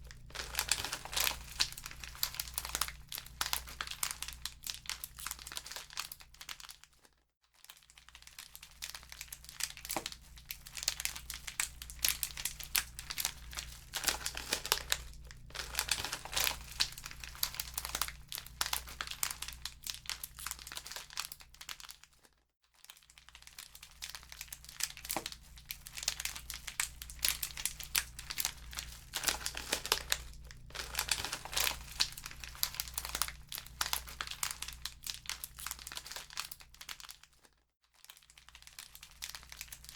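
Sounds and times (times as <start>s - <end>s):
wood fire crackling: 0.0s - 4.0s, 11.4s - 19.6s, 25.2s - 34.9s
low steady hum: 0.0s - 5.6s, 8.9s - 21.2s, 24.0s - 36.4s.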